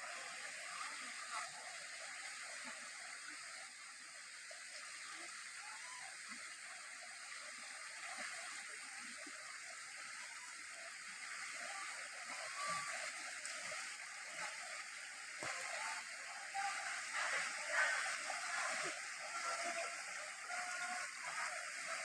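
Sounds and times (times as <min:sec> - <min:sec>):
faint high-pitched sounds: 0:00.0 - 0:22.0
river water rushing: 0:11.1 - 0:22.0.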